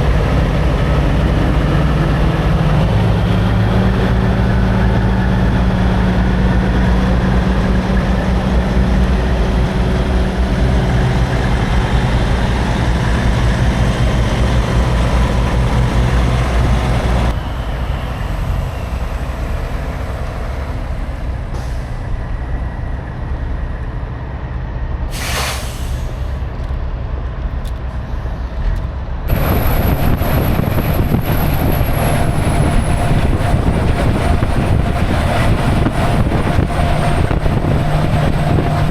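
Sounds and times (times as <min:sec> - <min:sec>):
diesel truck engine running: 0:00.0 - 0:38.9
air brake hiss: 0:25.1 - 0:26.4.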